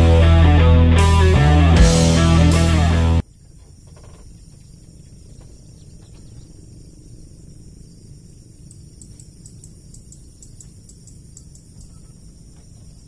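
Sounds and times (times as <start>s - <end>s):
crickets trilling: 3.2s - 13.0s.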